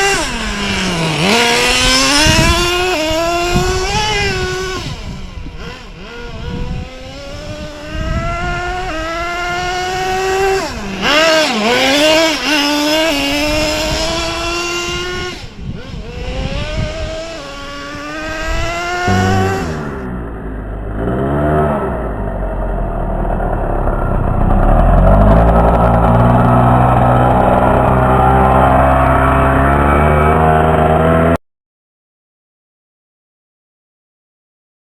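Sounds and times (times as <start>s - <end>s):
small engine revving: 0.0s - 31.4s.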